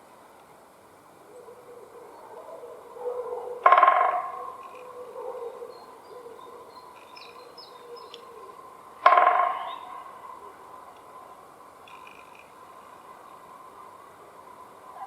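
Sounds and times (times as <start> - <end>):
woodpecker drumming on tree: 3.6 - 5.0, 9.0 - 9.9, 11.8 - 12.6
small birds chirping: 3.7 - 11.3.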